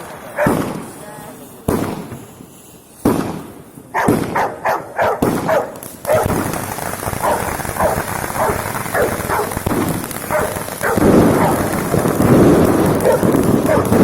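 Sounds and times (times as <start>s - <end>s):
fireworks crackling and banging: 0.0s - 14.0s
dog barking: 4.0s - 6.3s, 7.2s - 9.6s, 10.3s - 11.7s, 13.0s - 14.0s.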